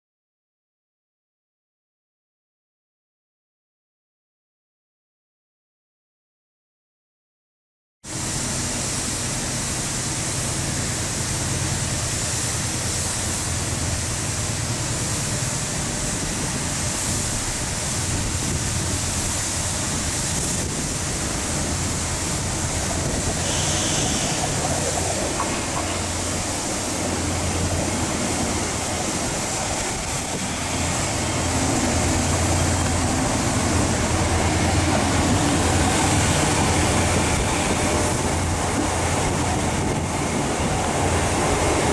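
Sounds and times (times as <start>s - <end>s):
train rumble and hiss: 8.1s - 41.9s.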